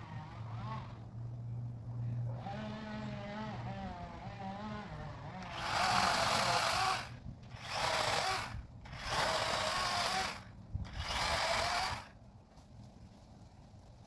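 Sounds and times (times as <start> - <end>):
power saw cutting branches: 0.0 - 1.1, 2.3 - 12.2.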